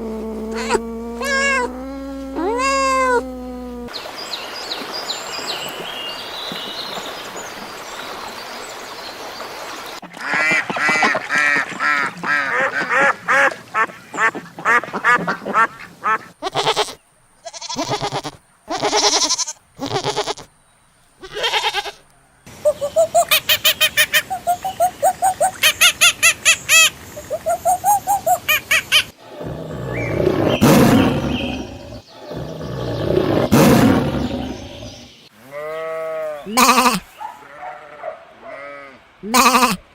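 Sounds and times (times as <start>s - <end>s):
steady hiss: 0.0s - 6.4s
bird calls: 22.5s - 37.7s
pulsed bird chattering: 22.6s - 35.2s.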